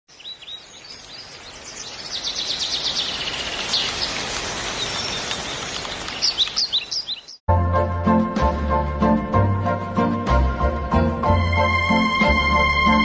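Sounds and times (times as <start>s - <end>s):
songbirds chirping: 0.1s - 7.4s.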